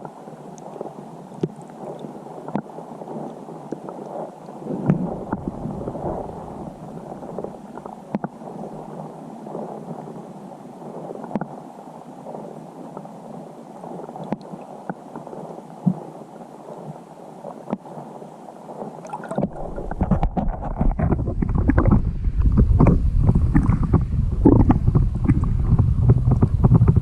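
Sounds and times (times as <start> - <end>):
wind noise: 0.0 - 14.6, 16.7 - 27.0
wind gusts buffeting microphone: 4.6 - 9.0, 19.2 - 27.0.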